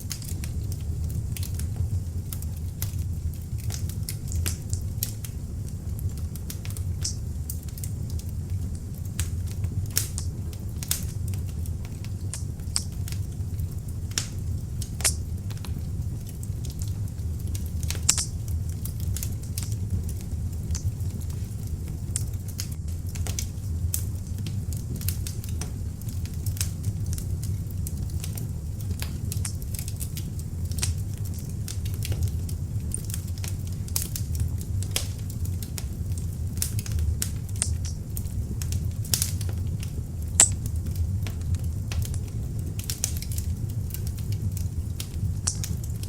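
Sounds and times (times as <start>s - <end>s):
logs burning with crackles and pops: 0.0s - 46.0s.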